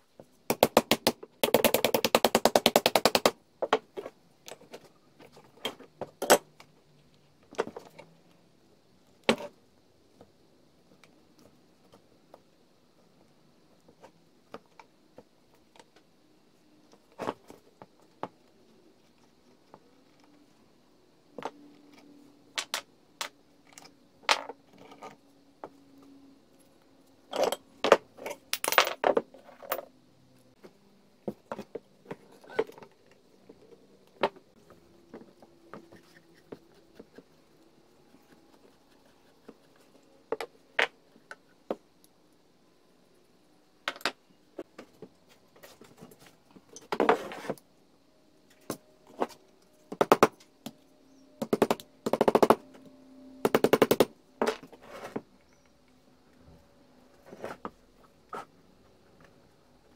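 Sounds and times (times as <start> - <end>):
small metal parts clinking: 27.3 - 29.9.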